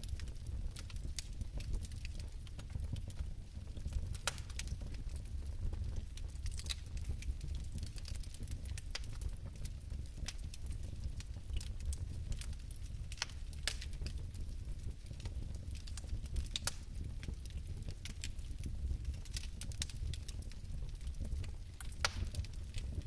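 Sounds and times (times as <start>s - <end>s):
fire crackling: 0.0s - 23.0s
low rumble of flame: 0.0s - 23.0s.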